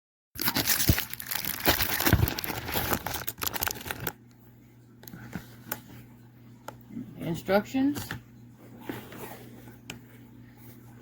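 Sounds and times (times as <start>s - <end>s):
packaging crinkling: 0.4s - 4.2s.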